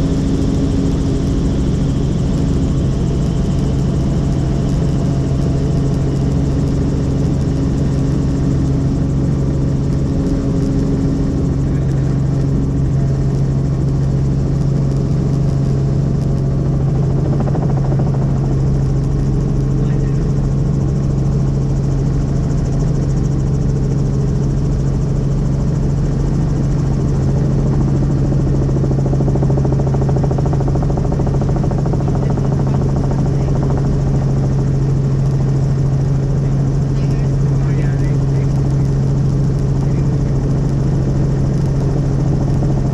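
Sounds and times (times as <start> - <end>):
helicopter rotor and engine drone: 0.0 - 42.9.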